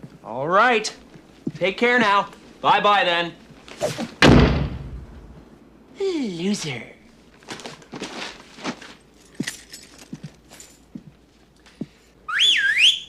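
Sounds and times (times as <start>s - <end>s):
loud swooping whistle: 12.3s - 13.0s.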